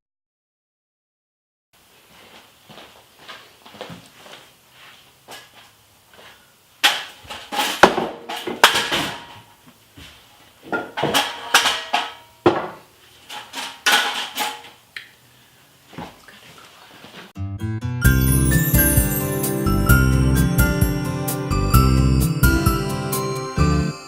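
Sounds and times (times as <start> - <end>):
dishes and pans clinking: 6.8 - 9.5, 10.7 - 14.8.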